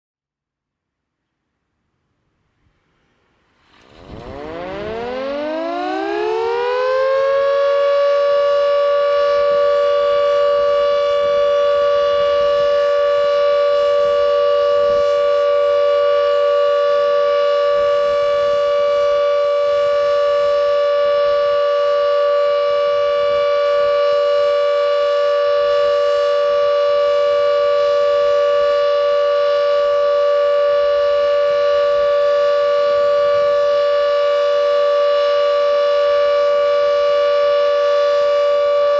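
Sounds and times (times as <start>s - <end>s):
civil defence siren wailing: 3.7s - 38.9s.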